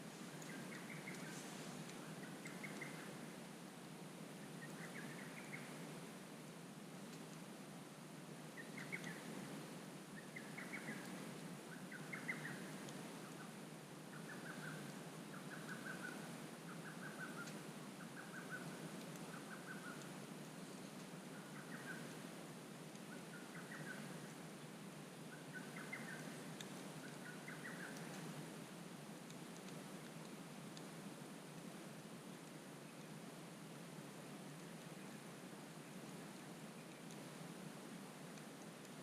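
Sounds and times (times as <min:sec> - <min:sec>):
campfire crackles: 0:00.0 - 0:39.0
bird chirping: 0:00.4 - 0:03.1, 0:11.7 - 0:12.6, 0:25.3 - 0:28.1.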